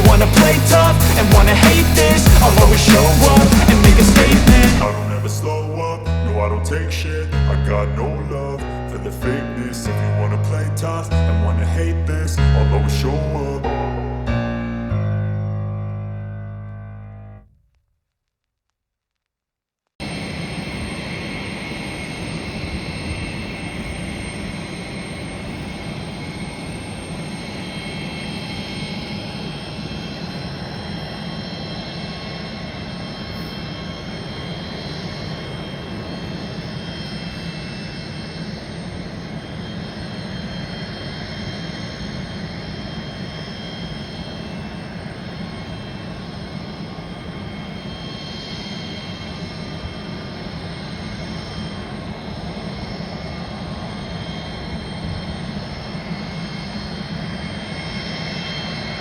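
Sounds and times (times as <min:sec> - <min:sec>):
jet engines running: 0:00.0 - 0:06.3, 0:20.0 - 0:59.0.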